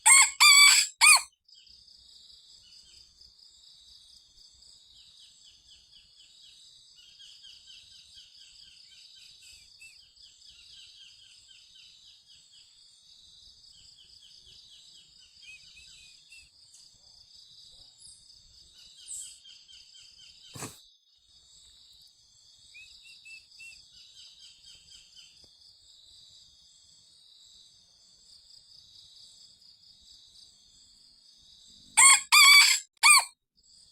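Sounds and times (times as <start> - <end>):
loud fowl call: 0.0 - 1.3, 32.0 - 33.3
high insect chorus: 0.1 - 33.9.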